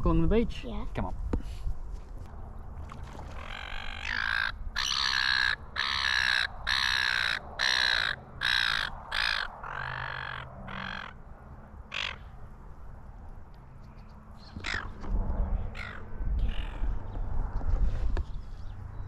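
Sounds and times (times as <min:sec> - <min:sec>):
wind rumble on microphone: 0:00.0 - 0:04.8, 0:12.6 - 0:19.0
birds cawing: 0:03.3 - 0:12.5, 0:14.4 - 0:15.0, 0:15.6 - 0:17.0.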